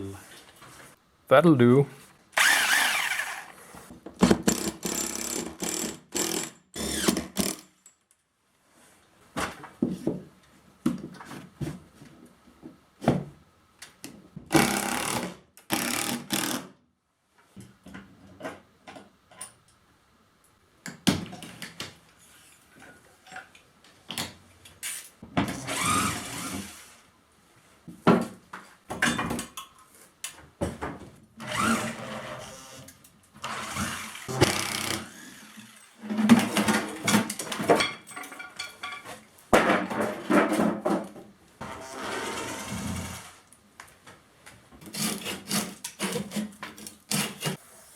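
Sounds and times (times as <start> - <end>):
power tool bursts: 2.4 - 3.6, 33.5 - 36.0.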